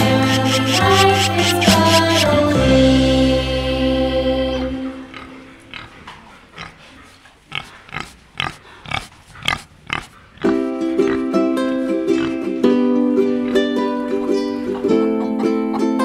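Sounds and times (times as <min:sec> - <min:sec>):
wild boar grunting: 0:00.0 - 0:03.1, 0:04.7 - 0:15.3
ukulele music: 0:00.0 - 0:04.8, 0:10.5 - 0:16.0.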